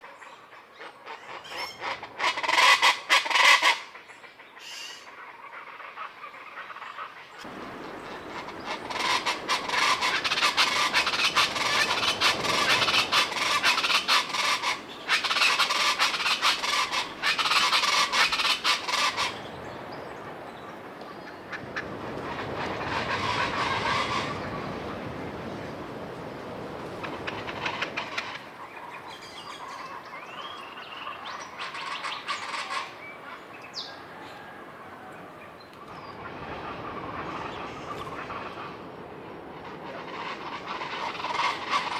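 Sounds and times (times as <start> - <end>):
birds calling loudly: 6.7 - 39.0.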